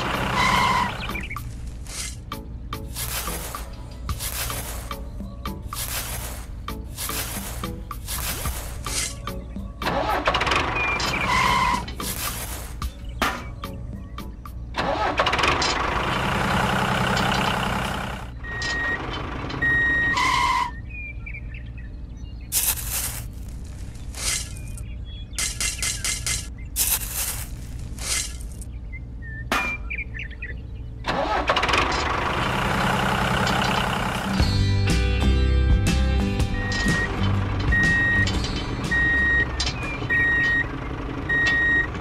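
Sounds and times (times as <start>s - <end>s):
low engine-like hum: 0.0s - 42.0s
toy shovel scraping sand: 0.4s - 5.0s, 5.6s - 9.3s, 11.0s - 12.9s, 22.5s - 24.8s, 25.4s - 28.6s.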